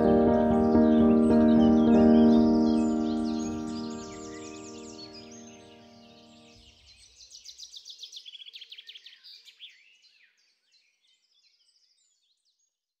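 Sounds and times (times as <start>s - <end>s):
background music: 0.0s - 6.1s
songbirds singing: 0.0s - 12.6s.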